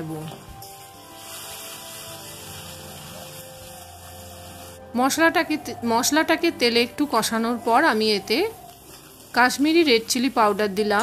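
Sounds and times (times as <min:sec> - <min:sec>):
soft background music: 0:00.0 - 0:11.0
spices sizzling in hot oil: 0:00.0 - 0:11.0.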